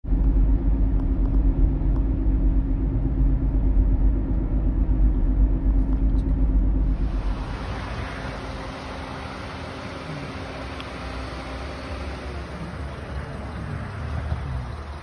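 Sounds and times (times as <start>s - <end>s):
engine idling: 0.1s - 15.0s
fan-like hiss: 7.0s - 10.8s.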